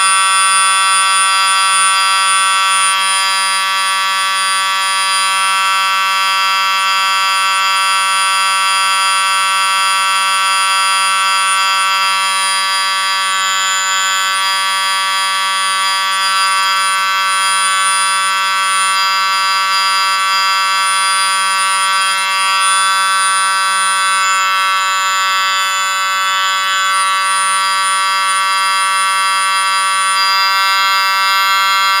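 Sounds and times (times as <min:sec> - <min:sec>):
high electronic drone: 0:10.9 - 0:32.0.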